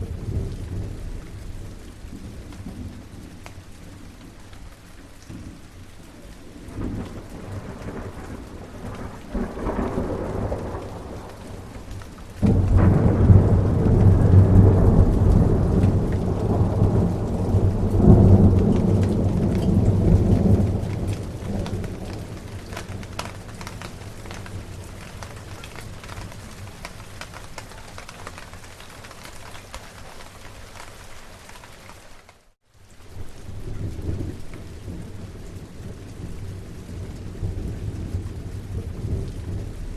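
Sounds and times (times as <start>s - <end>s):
steady rain: 0.0s - 39.9s
rolling thunder: 6.5s - 28.0s
loud thunderclap: 6.7s - 26.9s.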